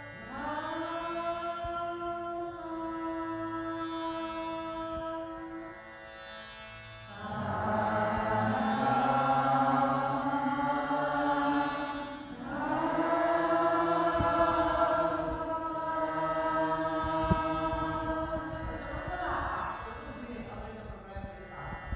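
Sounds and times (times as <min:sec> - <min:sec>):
person chanting held tones: 0:07.1 - 0:20.1.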